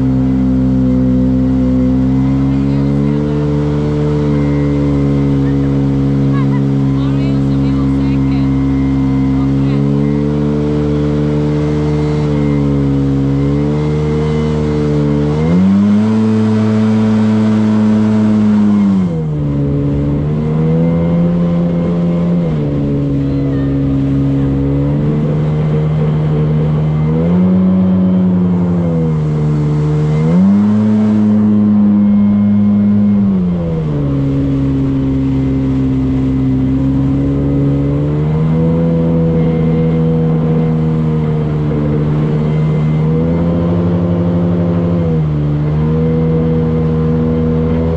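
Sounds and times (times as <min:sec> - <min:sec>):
motorboat engine running: 0:00.0 - 0:47.9
rush of wind and water: 0:00.0 - 0:47.9.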